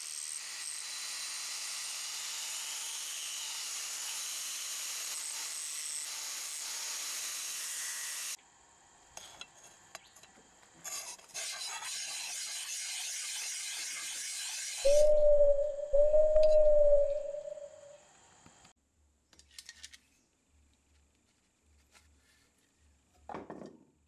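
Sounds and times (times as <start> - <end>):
angle grinder sanding metal: 11.3 - 15.0
loud steady tone: 14.9 - 17.9.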